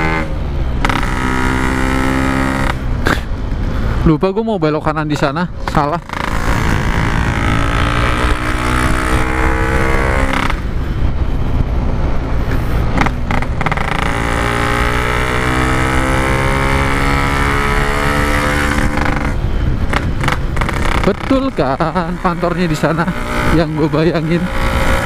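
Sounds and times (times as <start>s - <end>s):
wind rumble on microphone: 4.8s - 25.0s
two-stroke motorcycle engine: 5.7s - 10.9s, 12.9s - 25.0s.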